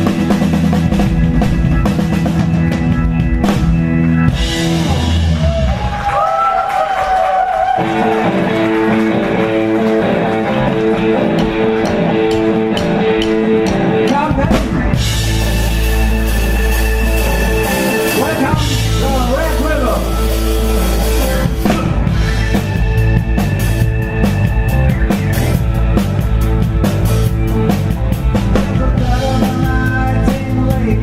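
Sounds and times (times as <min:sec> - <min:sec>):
blues-rock band playing live: 0:00.0 - 0:06.1, 0:07.6 - 0:31.0
electric guitar bent notes: 0:07.8 - 0:31.0.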